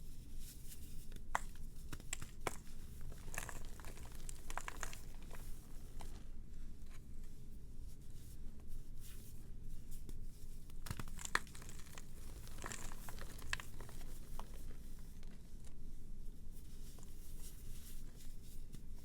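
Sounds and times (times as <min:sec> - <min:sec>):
brittle material crackling when crushed: 0:01.3 - 0:06.2, 0:10.8 - 0:15.4.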